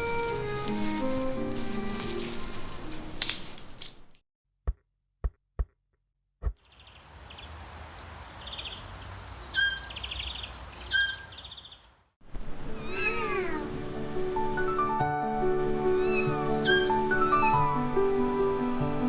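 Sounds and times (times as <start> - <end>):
birds chirping: 6.6 - 12.0, 12.8 - 13.6.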